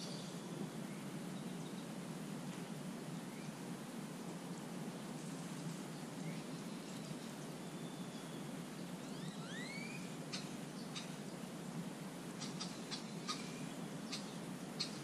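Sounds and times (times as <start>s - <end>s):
birds whistling: 6.3s - 11.3s, 12.4s - 15.0s
sharp short bird ticks: 10.3s - 11.2s, 12.4s - 15.0s.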